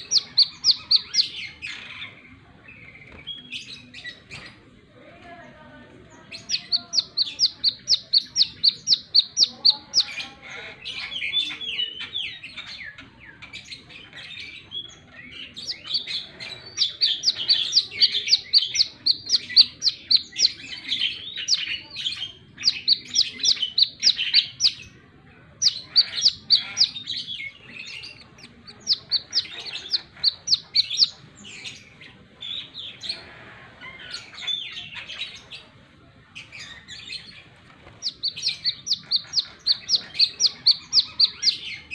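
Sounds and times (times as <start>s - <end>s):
bird twittering: 0.0s - 2.2s, 6.3s - 12.8s, 15.3s - 25.0s, 25.6s - 33.2s, 36.6s - 41.9s.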